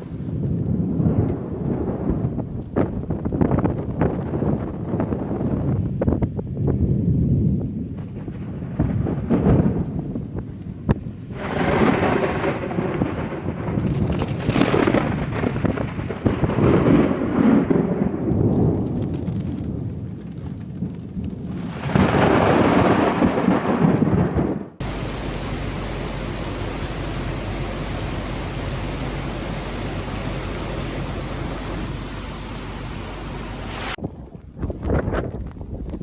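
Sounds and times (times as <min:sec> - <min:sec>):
thunder rumbling: 0:00.0 - 0:36.0
heavy rain hissing: 0:24.8 - 0:34.0.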